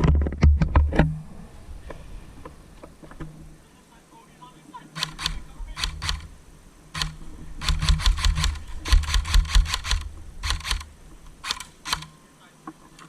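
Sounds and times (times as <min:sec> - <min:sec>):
airsoft guns firing rapid bursts: 0:05.0 - 0:06.3, 0:07.0 - 0:12.1.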